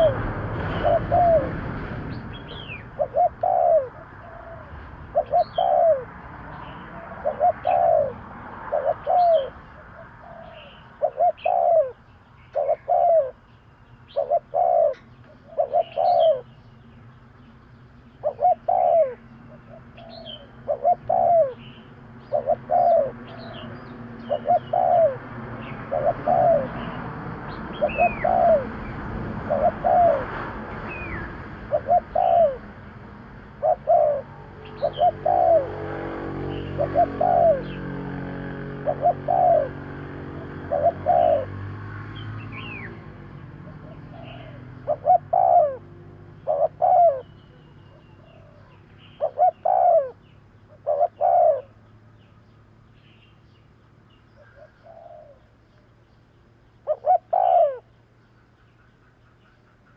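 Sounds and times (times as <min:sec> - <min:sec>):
dove cooing: 0:00.0 - 0:13.4, 0:14.1 - 0:16.6, 0:18.2 - 0:32.8, 0:33.4 - 0:41.6, 0:42.6 - 0:51.8, 0:54.4 - 0:55.5, 0:56.8 - 0:57.9
small birds chirping: 0:00.0 - 0:59.9.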